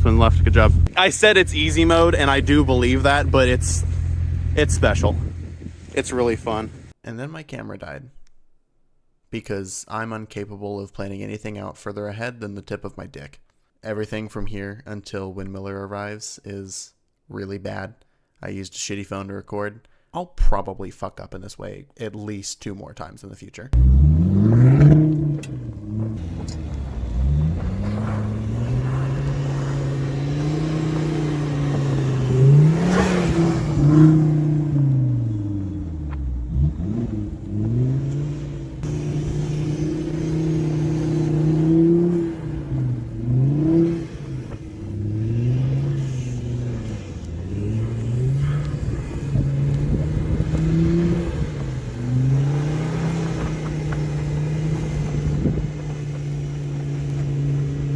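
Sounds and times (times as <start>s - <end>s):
car engine revving: 0.0s - 6.9s, 23.8s - 57.9s.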